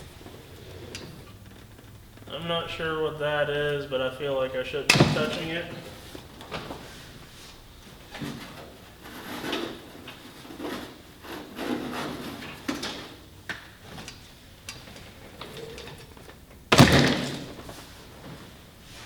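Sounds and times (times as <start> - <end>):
rummaging through debris: 13.8 - 18.6.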